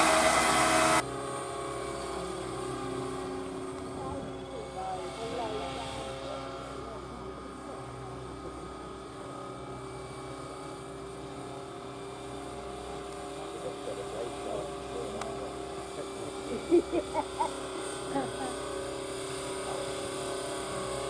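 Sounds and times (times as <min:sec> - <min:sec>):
model helicopter whine: 0:00.0 - 0:21.0.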